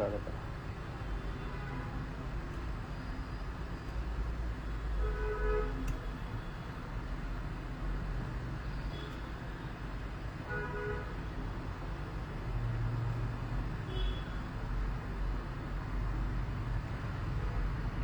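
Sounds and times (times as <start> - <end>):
vehicle horn toots: 5.0 - 5.8, 10.5 - 11.1, 13.9 - 14.4.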